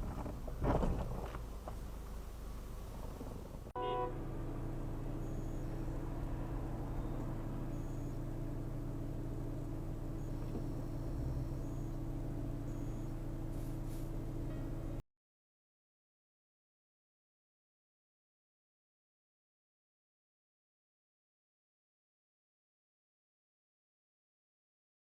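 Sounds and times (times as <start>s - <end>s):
car engine and road hum: 0.0s - 15.0s
short beep: 3.8s - 4.2s, 5.2s - 5.8s, 6.9s - 8.3s, 12.6s - 13.7s.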